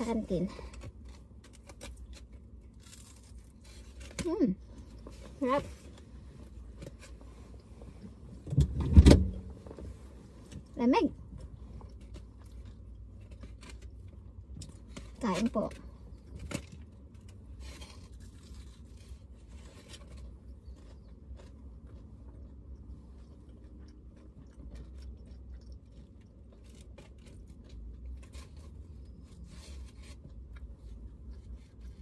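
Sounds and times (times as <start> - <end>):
small crunches and scrapes: 0.0 - 8.8, 9.6 - 32.0
steady low hum: 0.0 - 32.0
person chewing food: 11.2 - 15.2, 15.8 - 32.0.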